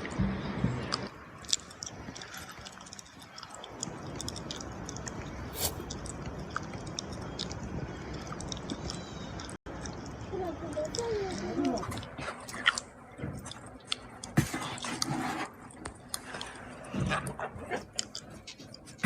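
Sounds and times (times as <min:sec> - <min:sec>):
rain hissing: 0:05.4 - 0:05.9.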